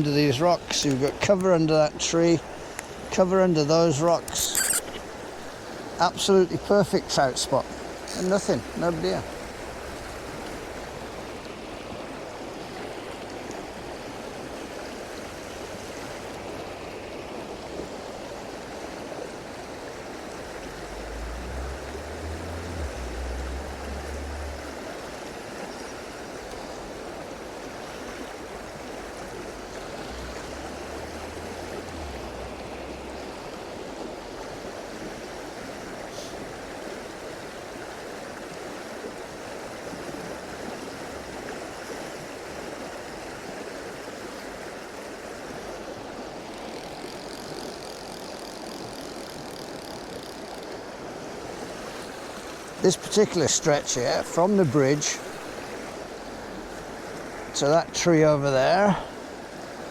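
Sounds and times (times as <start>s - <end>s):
stream rushing water: 0.0s - 59.9s
low rumbles on microphone: 20.5s - 25.4s.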